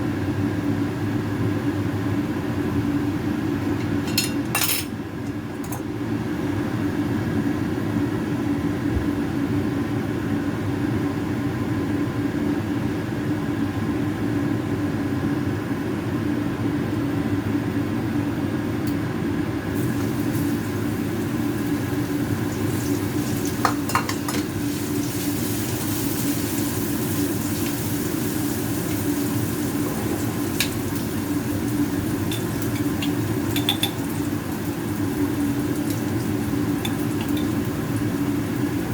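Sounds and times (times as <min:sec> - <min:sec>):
meat sizzling in oil: 0:19.7 - 0:38.9
utensil clinking on pan: 0:32.3 - 0:34.0.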